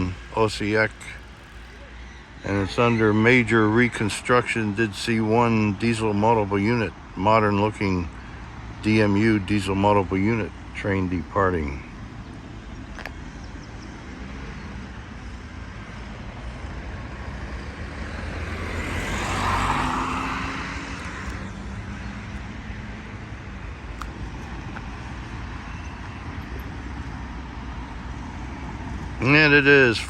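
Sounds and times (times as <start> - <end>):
low traffic rumble: 0.0 - 30.0
vehicle passing close by: 16.0 - 30.0.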